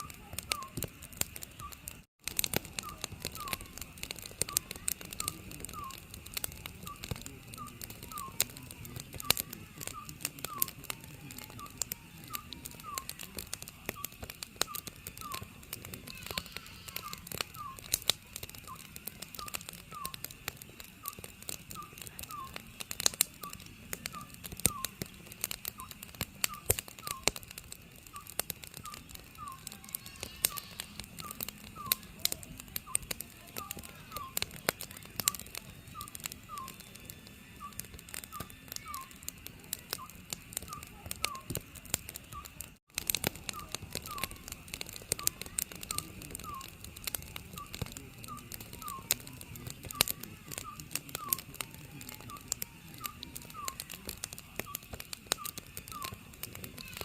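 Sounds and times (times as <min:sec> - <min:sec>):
wood fire crackling: 0:00.0 - 0:57.0
owl hooting: 0:02.7 - 0:03.9, 0:04.5 - 0:06.1, 0:11.6 - 0:18.0, 0:18.6 - 0:20.2, 0:21.0 - 0:22.6, 0:28.2 - 0:34.5, 0:35.3 - 0:36.8, 0:37.6 - 0:39.2, 0:40.0 - 0:41.5, 0:43.5 - 0:46.8, 0:53.1 - 0:57.0.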